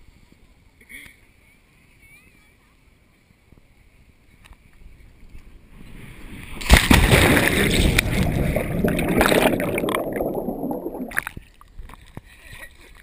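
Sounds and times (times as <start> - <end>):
water churning and sloshing: 5.8 - 13.0
loud splash into water: 6.6 - 11.3.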